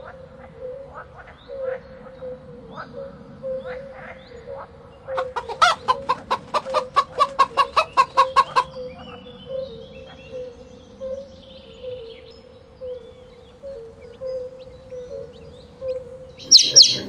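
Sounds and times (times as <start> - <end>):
hen clucking: 5.1 - 8.8, 16.4 - 17.0
faint high bird chirps: 14.0 - 17.0.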